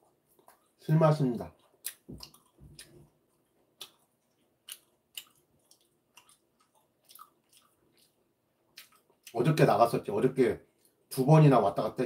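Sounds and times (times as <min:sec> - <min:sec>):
wet mouth clicks chewing: 0:01.5 - 0:09.4.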